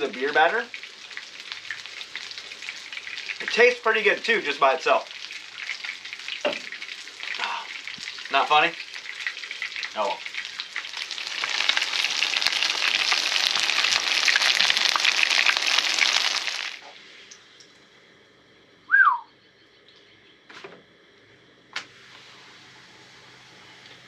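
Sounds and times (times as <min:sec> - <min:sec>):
fish frying in hot oil: 0:00.0 - 0:17.6
whistled bird call: 0:18.9 - 0:19.4.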